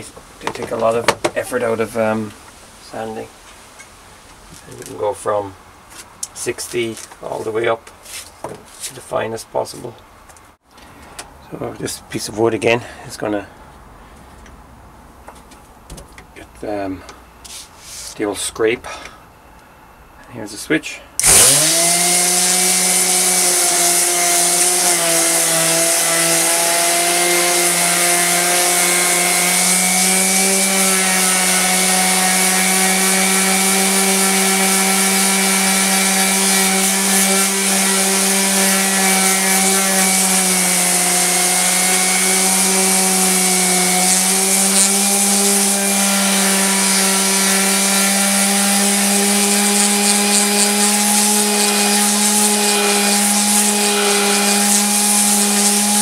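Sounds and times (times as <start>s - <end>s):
sandpaper hissing on wood: 17.4s - 18.2s, 21.2s - 56.0s
orbital sander motor whine: 21.2s - 56.0s.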